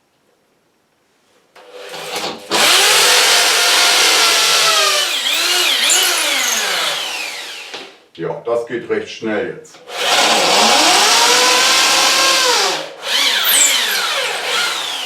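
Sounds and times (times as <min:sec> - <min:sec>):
hammer drill boring into wall: 0:02.0 - 0:08.0, 0:09.9 - 0:15.0.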